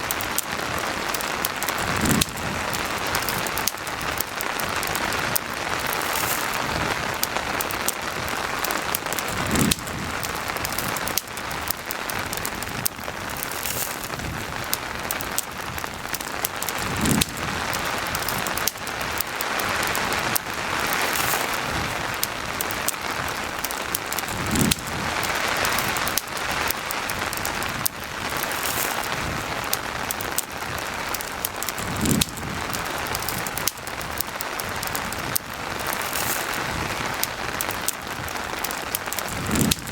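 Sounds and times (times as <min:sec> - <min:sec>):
campfire crackling: 0:00.0 - 0:39.9
steady rain: 0:00.0 - 0:39.9.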